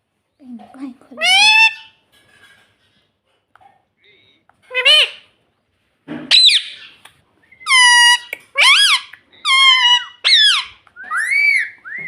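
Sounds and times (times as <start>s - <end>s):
parrot shrill calls: 1.2s - 2.0s, 6.3s - 12.0s.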